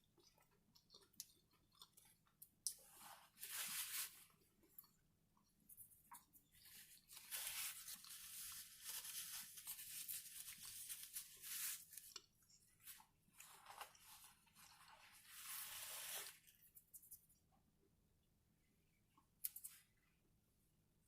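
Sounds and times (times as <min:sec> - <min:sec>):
chip bag crinkling: 0:06.7 - 0:12.2.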